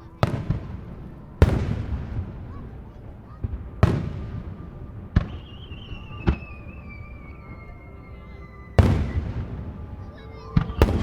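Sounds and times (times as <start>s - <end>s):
firework shells booming: 0.1s - 11.0s
high sustained falling tone: 4.3s - 11.0s.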